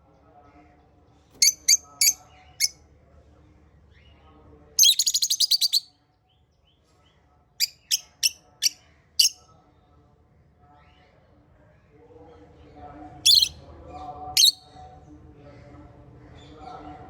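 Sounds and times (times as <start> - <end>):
parrots chirping: 1.4 - 2.7, 4.8 - 5.8, 7.6 - 9.4, 13.3 - 13.5, 14.4 - 14.6.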